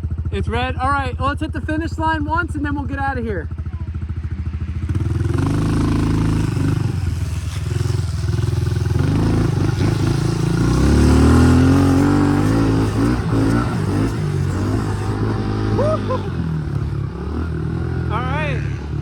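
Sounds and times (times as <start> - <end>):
pit bike engine revving: 0.1 - 19.0.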